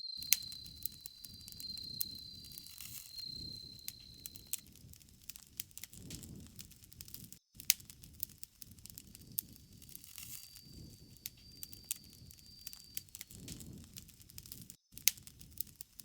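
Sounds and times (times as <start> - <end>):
thin high tone: 0.0 - 4.6, 9.2 - 13.2
campfire crackling: 0.0 - 16.0.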